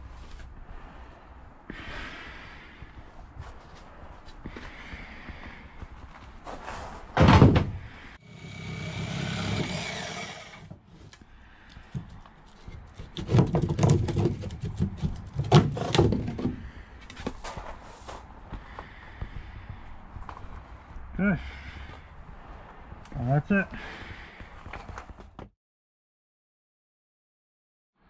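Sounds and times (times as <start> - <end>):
heavy thud: 7.2 - 7.9
knocks and rattles: 11.9 - 16.6.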